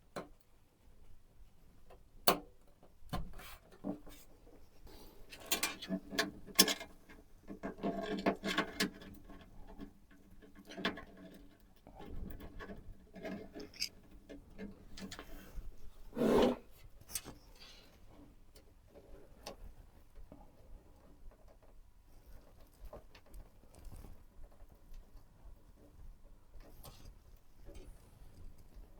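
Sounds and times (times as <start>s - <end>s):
rubbing and scraping: 13.5s - 13.9s.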